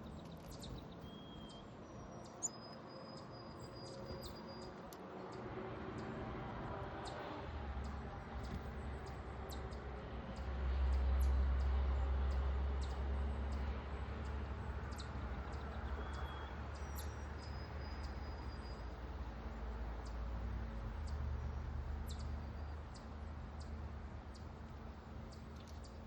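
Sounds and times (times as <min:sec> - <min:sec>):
songbirds chirping: 0:00.0 - 0:26.0
whistled bird notes: 0:00.4 - 0:04.7.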